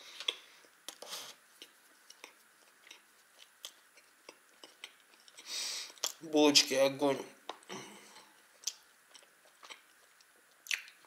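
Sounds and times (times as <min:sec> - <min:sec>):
person chewing soft bread: 0:00.2 - 0:06.2, 0:07.4 - 0:11.0.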